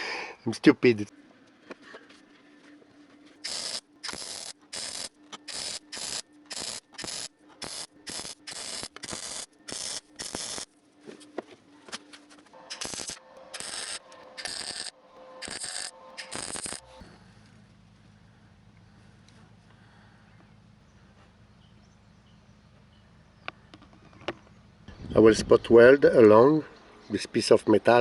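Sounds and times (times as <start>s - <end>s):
welder arc crackling on sheet steel: 3.4s - 10.8s, 12.7s - 16.9s.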